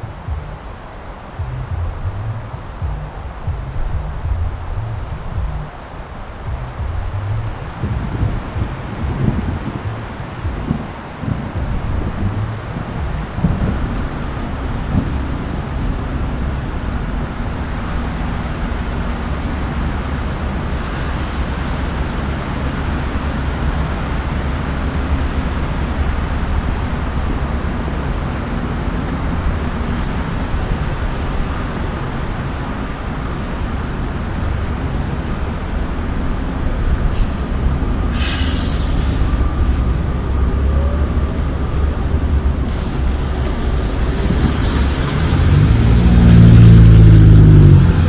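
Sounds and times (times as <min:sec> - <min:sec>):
heavy engine running: 0:00.0 - 0:48.0
street traffic rumble: 0:00.0 - 0:48.0
short hisses: 0:38.1 - 0:40.8.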